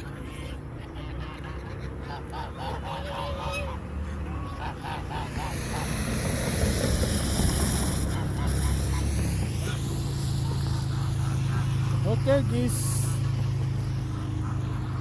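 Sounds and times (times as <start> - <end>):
geese honking: 0.0 - 6.3, 7.1 - 15.0
steady rushing noise: 4.8 - 15.0.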